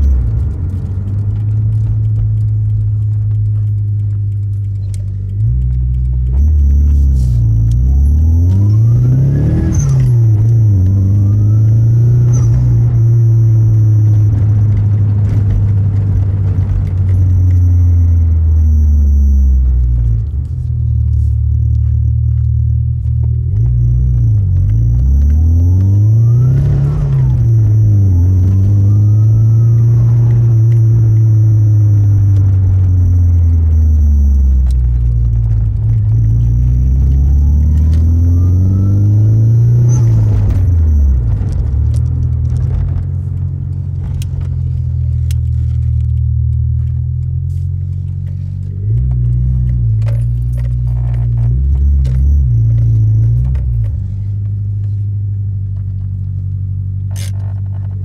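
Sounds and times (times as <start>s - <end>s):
car engine revving: 0.0s - 58.0s
siren-like turbo whine: 5.4s - 45.2s, 51.0s - 54.0s.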